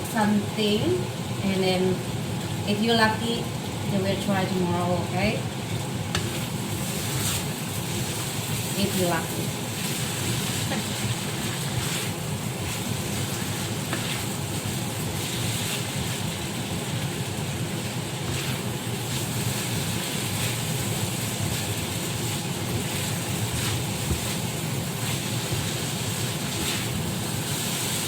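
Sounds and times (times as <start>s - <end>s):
filling frying in a pan: 0.0s - 28.0s
spatula tapping pan: 10.6s - 14.3s.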